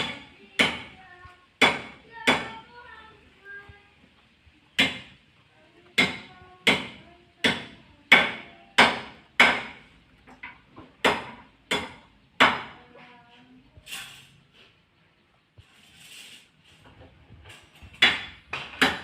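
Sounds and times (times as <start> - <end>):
sharp knocks: 6.0 - 12.8, 17.9 - 19.0.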